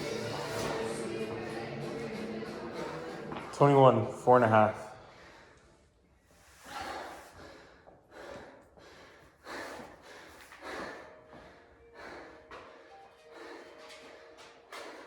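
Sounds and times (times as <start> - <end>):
person panting hard: 5.0 - 5.8, 6.4 - 15.0.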